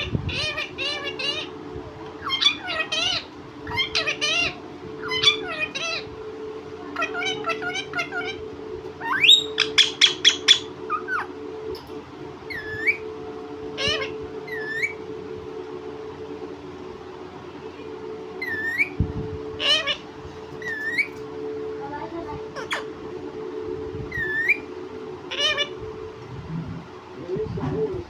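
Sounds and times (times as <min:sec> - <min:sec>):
parrot squawking calls: 0:00.0 - 0:06.1, 0:06.9 - 0:11.4, 0:12.4 - 0:13.1, 0:13.7 - 0:15.1, 0:18.4 - 0:19.0, 0:19.6 - 0:21.2, 0:22.5 - 0:23.1, 0:24.1 - 0:25.8
low hum: 0:00.0 - 0:28.0.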